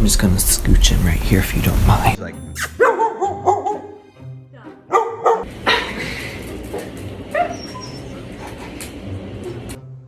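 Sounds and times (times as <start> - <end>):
background music: 0.1 - 10.0
dog barking: 2.8 - 4.1, 4.9 - 6.0, 6.7 - 8.8
dog whining: 5.4 - 8.9.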